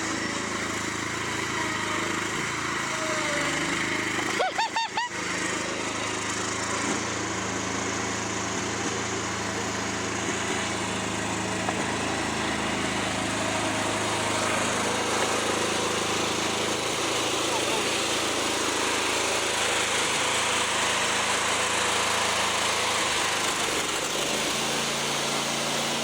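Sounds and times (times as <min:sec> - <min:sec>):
small lawnmower engine running: 0:00.0 - 0:26.0.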